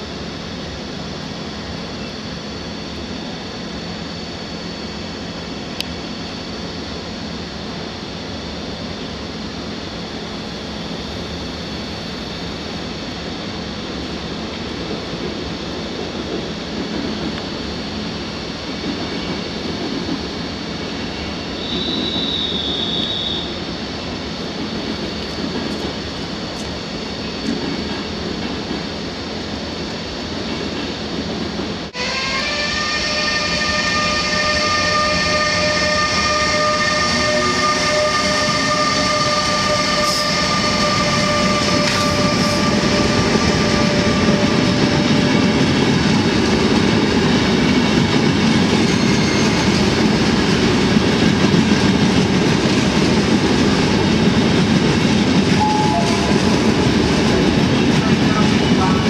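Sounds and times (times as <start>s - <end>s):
electric locomotive whine: 0.0s - 59.0s
train coaches rumbling on rails: 0.0s - 59.0s.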